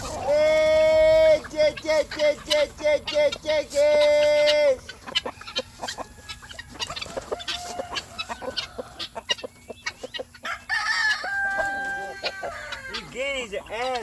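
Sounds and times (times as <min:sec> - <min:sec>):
chickens clucking: 0:00.0 - 0:14.0
loud drawn-out chicken call: 0:02.1 - 0:09.5, 0:10.3 - 0:13.2.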